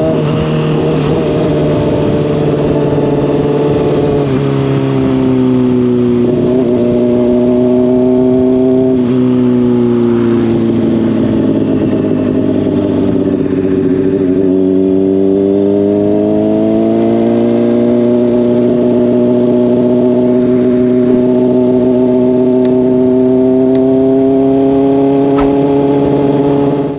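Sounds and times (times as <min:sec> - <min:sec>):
motorcycle engine running: 0:00.0 - 0:16.2, 0:17.8 - 0:26.9.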